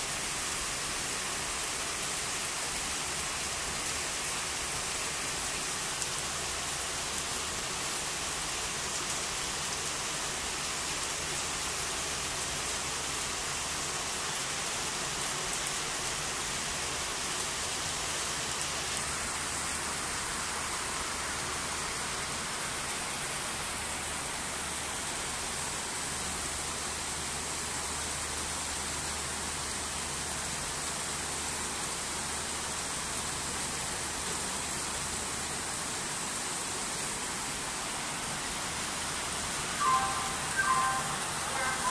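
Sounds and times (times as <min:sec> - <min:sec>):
heavy rain on a canopy: 0:00.0 - 0:41.9.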